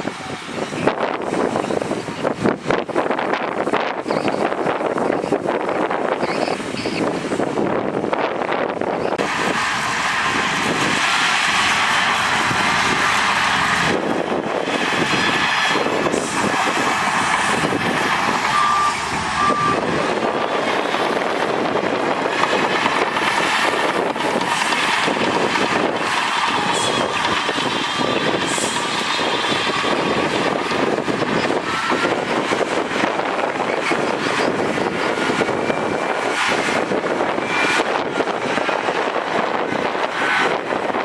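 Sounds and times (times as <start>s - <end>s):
heavy diesel machinery running: 4.4s - 41.0s
reversing alarm beeping: 15.0s - 32.7s, 33.5s - 39.0s.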